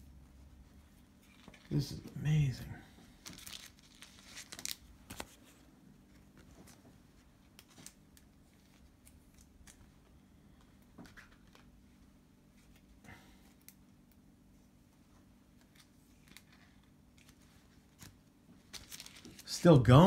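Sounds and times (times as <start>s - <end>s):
trading cards handled in sleeves: 0.3s - 19.5s.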